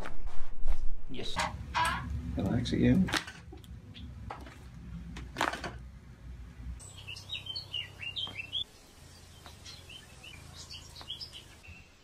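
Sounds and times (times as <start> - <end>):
low steady hum: 1.2 - 11.6
bird chirping: 3.8 - 4.2, 6.8 - 12.0.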